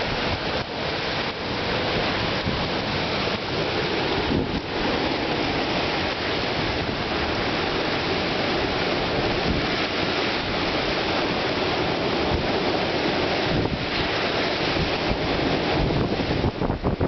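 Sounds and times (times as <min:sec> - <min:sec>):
strong storm wind: 0:00.0 - 0:17.0
wind buffeting microphone: 0:00.0 - 0:17.0.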